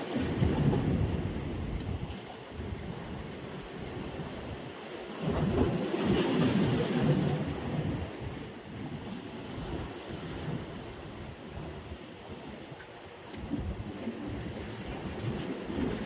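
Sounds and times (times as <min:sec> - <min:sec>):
sea surf on beach: 0:00.0 - 0:16.0
wind buffeting microphone: 0:00.1 - 0:16.0.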